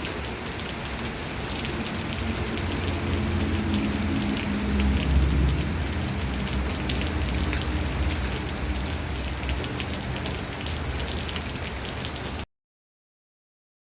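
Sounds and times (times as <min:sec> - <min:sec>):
rain drops striking a surface: 0:00.0 - 0:12.5
low rumble: 0:01.5 - 0:11.2.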